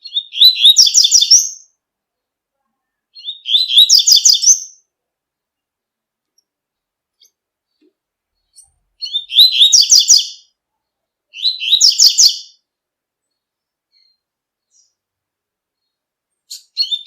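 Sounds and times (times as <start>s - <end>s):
bird rapid high chirping song: 0.0s - 1.8s, 3.1s - 4.9s, 8.3s - 10.6s, 11.3s - 12.6s, 15.8s - 17.0s.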